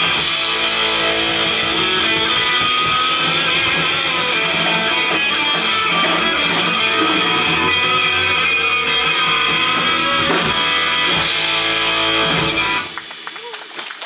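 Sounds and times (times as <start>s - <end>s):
strummed electric guitars: 0.0s - 13.3s
rock band playing: 0.0s - 13.7s.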